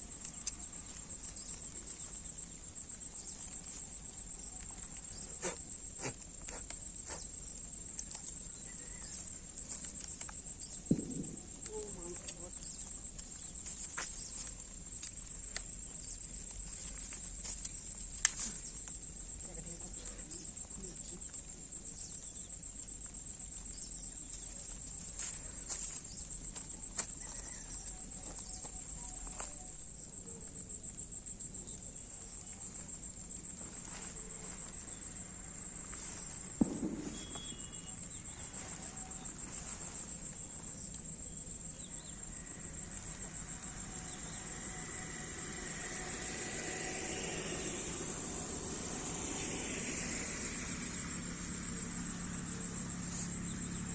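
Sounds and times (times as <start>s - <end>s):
insects trilling: 0.0s - 53.9s
sharp knock: 36.6s - 37.7s.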